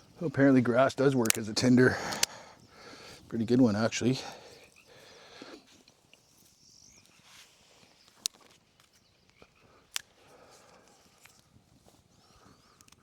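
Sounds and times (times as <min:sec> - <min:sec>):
wood snapping: 0:01.2 - 0:02.4
bird chirp: 0:02.4 - 0:09.8.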